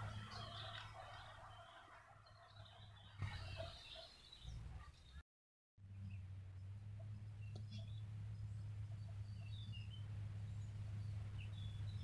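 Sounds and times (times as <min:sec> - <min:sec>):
bird chirps: 0:00.0 - 0:05.2.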